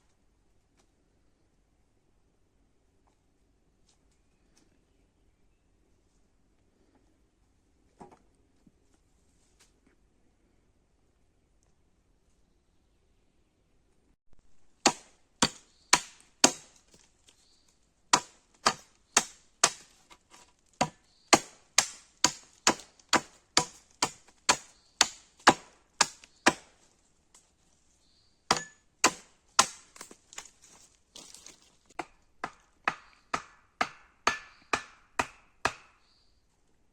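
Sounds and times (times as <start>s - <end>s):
axe chopping wood: 14.8s - 17.0s, 18.1s - 26.8s, 28.5s - 30.5s, 32.0s - 36.0s.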